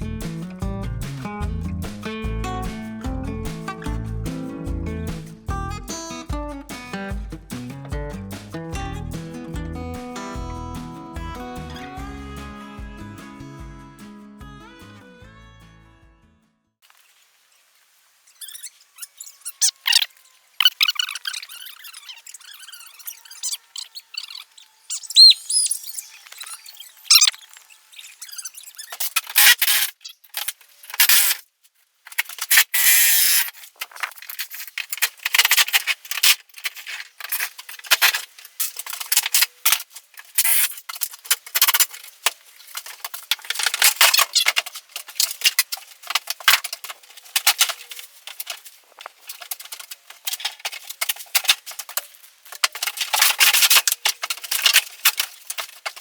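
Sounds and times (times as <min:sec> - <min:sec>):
high squeaks: 0:18.3 - 0:30.3, 0:43.5 - 0:44.6
cracking and tearing of panels: 0:28.9 - 0:56.0.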